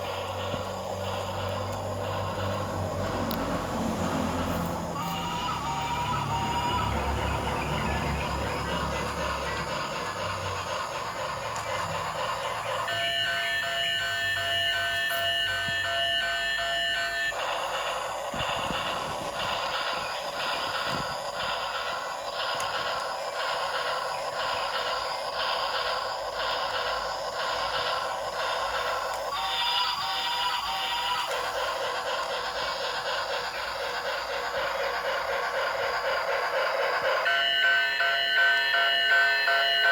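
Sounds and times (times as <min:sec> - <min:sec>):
toy train electronic sounds: 0:00.0 - 0:39.9.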